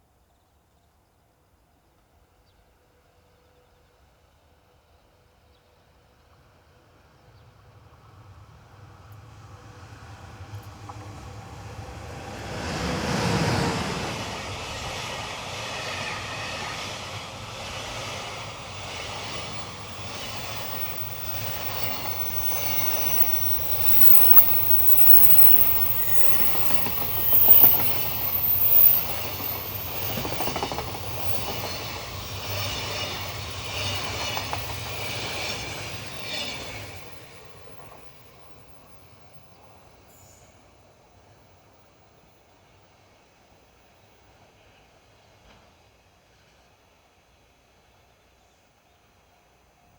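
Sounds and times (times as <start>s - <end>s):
electric locomotive rushing past: 8.1s - 40.0s.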